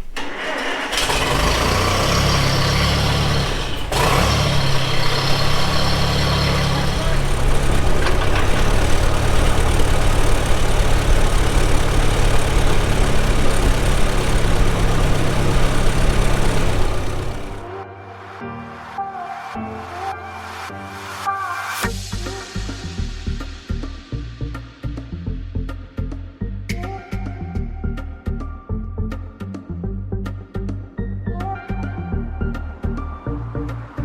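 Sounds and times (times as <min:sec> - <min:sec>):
farm vehicle engine running: 0:00.0 - 0:17.7.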